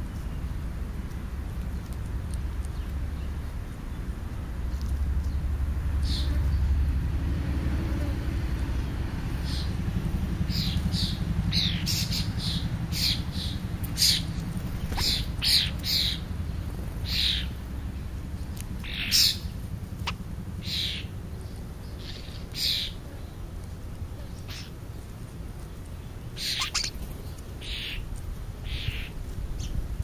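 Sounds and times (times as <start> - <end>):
steady low rumble: 0.0 - 30.0
birds giving short high calls: 10.5 - 16.3, 17.0 - 17.6, 18.8 - 21.1, 21.9 - 23.2, 24.3 - 24.8, 26.3 - 29.8.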